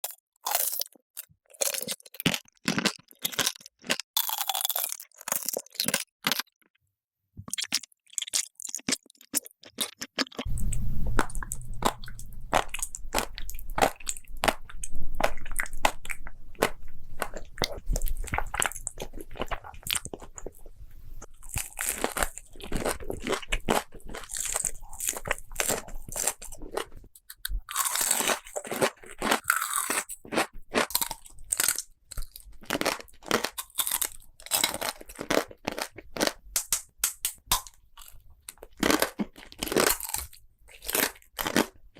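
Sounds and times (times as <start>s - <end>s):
crunching and chewing food: 0.0s - 6.8s, 7.4s - 41.9s
low steady hum: 10.5s - 21.3s.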